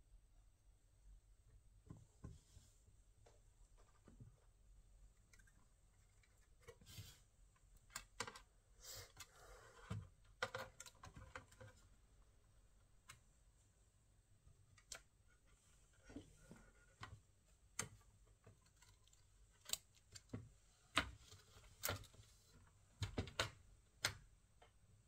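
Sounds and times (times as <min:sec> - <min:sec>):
soft rustle: 0:02.0 - 0:04.6.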